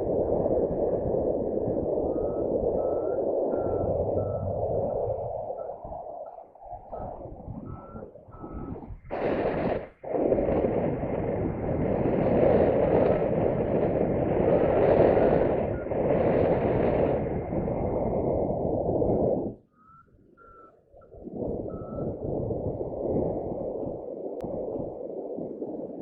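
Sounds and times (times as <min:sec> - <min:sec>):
wind rushing over microphone: 0:00.0 - 0:26.0
short high beeps: 0:02.1 - 0:05.0, 0:19.7 - 0:20.8.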